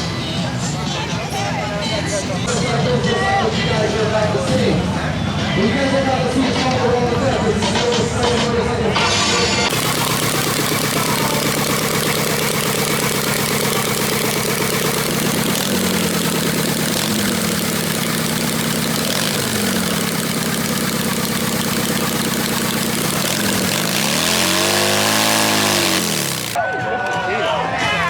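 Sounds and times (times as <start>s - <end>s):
motorcycle engine revving: 9.7s - 26.6s.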